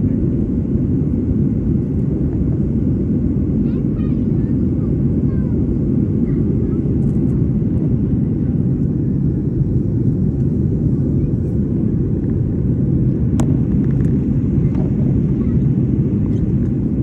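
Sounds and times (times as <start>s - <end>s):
airliner engines and rushing air: 0.0s - 17.0s.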